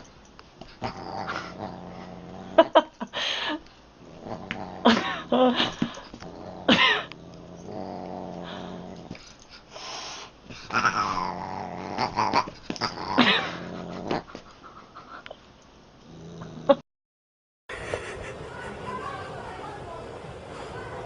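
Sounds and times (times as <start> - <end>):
cat growling: 0.8 - 2.9, 4.0 - 9.2, 10.6 - 14.4.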